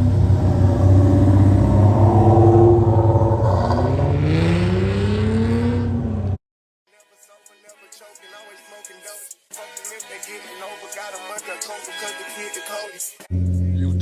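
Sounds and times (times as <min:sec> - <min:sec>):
car engine accelerating: 0:00.0 - 0:06.4.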